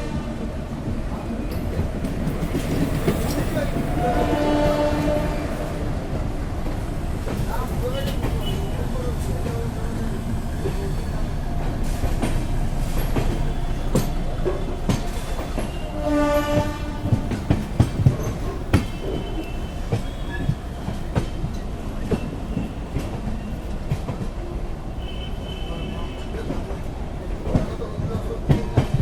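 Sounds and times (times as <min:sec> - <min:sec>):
train horn blast: 0:00.0 - 0:00.5, 0:03.9 - 0:06.0, 0:15.6 - 0:17.4
train rumbling on track: 0:00.0 - 0:29.0.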